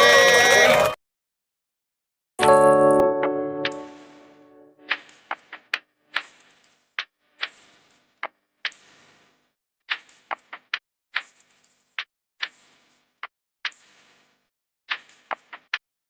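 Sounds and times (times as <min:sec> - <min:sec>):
sharp clicks and taps: 0:03.6 - 0:04.1.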